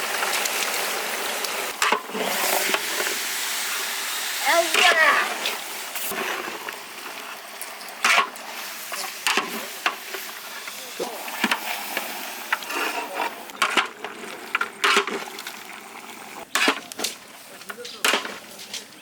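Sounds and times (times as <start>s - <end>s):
steady hiss: 0.0s - 19.0s
metal ladle scraping a pot: 1.8s - 3.1s, 7.6s - 10.3s, 11.3s - 17.3s.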